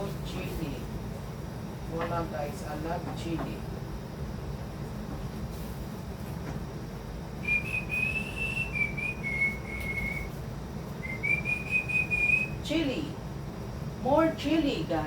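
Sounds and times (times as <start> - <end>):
person whistling a tune: 7.4 - 10.4, 11.0 - 12.6.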